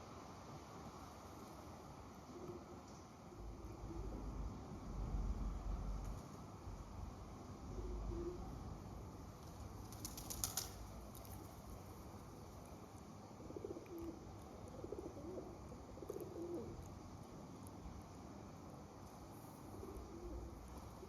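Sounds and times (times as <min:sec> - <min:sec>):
outdoor background hiss: 0:00.0 - 0:21.0
pigeon cooing: 0:07.7 - 0:08.6, 0:13.4 - 0:16.8, 0:19.7 - 0:20.6.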